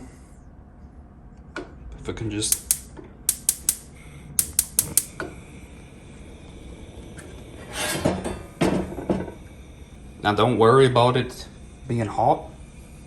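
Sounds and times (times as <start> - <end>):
gas stove igniter clicking: 2.5 - 5.3.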